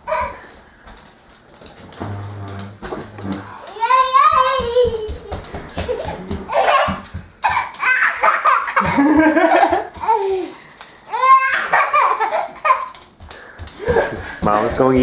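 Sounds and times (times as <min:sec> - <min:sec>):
young child laughing and squealing: 0:03.7 - 0:09.0, 0:10.0 - 0:12.9.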